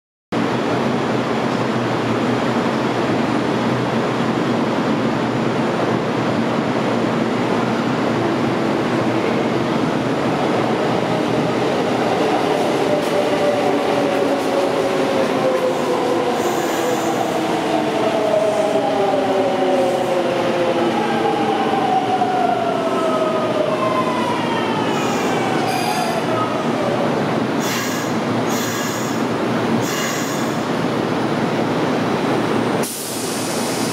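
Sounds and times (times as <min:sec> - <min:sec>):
train wheels rumbling on rail: 0:00.4 - 0:33.9
high-pitched brake squeals: 0:25.2 - 0:26.2.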